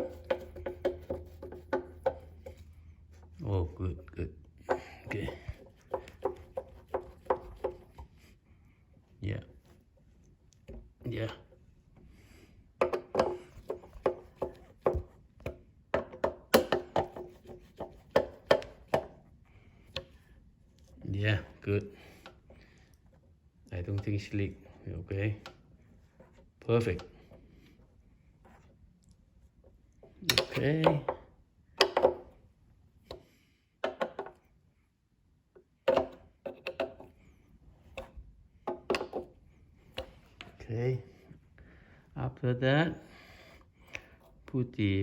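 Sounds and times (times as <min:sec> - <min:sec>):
metal tools knocking on hard surface: 0:00.0 - 0:02.7
tools knocking on hard surface: 0:00.0 - 0:02.8, 0:04.6 - 0:08.1, 0:12.8 - 0:19.2, 0:30.0 - 0:32.4, 0:33.8 - 0:34.5, 0:37.9 - 0:39.4.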